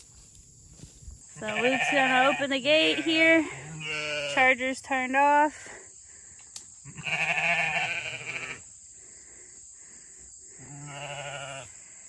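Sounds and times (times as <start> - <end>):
sheep bleating: 1.4 - 4.5, 6.8 - 8.6, 10.6 - 11.7.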